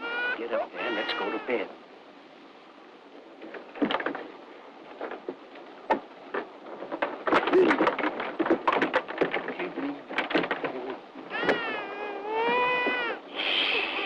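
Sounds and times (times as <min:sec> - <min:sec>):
knocks and bumps against wood: 0:03.4 - 0:13.1.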